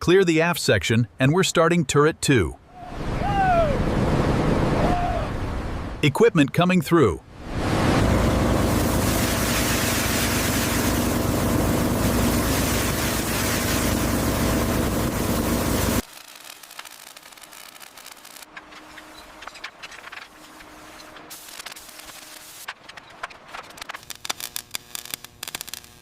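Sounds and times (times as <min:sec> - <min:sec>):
heavy machinery engine running: 0:07.8 - 0:16.0
loud hiss: 0:08.4 - 0:16.1.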